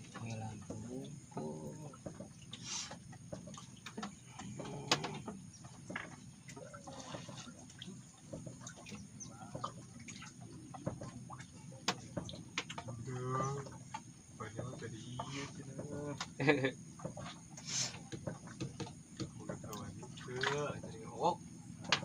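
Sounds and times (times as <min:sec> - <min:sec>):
bird-like calls: 0:04.2 - 0:12.5.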